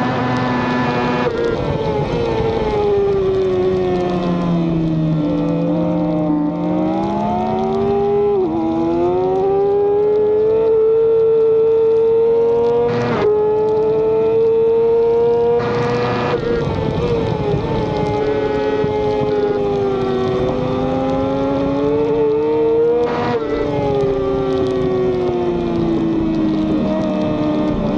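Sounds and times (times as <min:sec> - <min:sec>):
racing motorcycle engine accelerating: 0:00.0 - 0:27.9
wind rush: 0:15.6 - 0:27.9.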